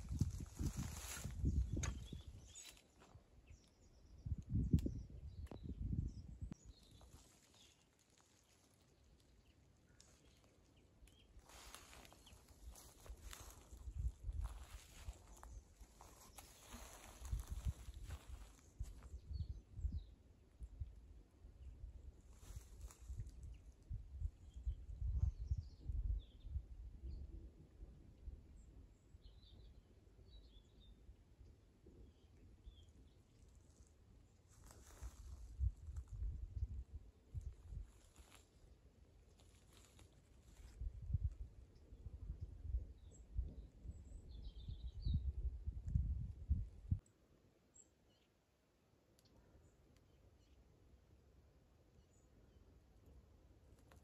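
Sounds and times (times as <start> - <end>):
small birds chirping: 0.0 - 21.0, 28.6 - 38.5, 39.3 - 47.0.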